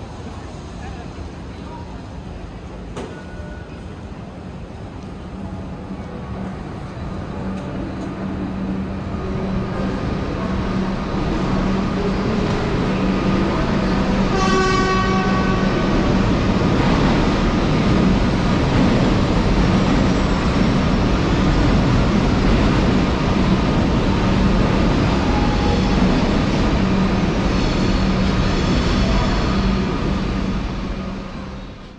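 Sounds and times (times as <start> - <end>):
train running: 0.0 - 31.9.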